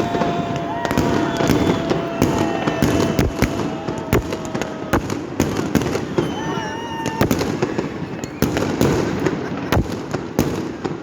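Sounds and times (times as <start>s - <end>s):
steady whistling tone: 0.0s - 4.9s, 5.8s - 7.0s
gliding firework whistles: 0.0s - 9.3s
firework bangs and cracks: 0.0s - 11.0s.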